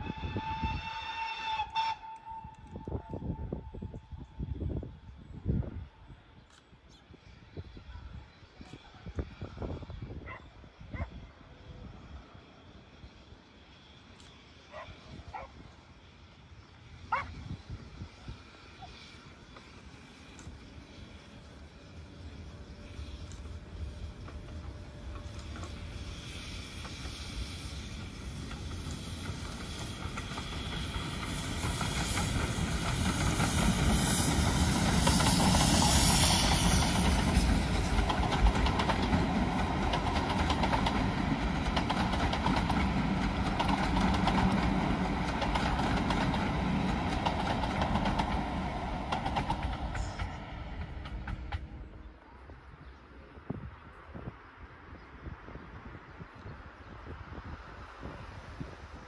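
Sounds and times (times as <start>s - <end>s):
steam train passing: 0.0s - 59.0s
coach wheels clattering over track: 28.3s - 51.8s.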